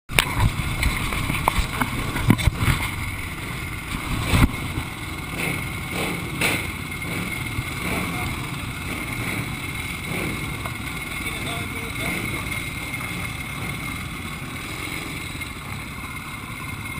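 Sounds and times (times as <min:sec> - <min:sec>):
motorcycle engine idling: 0:00.1 - 0:16.9
sharp knocks: 0:05.3 - 0:08.2.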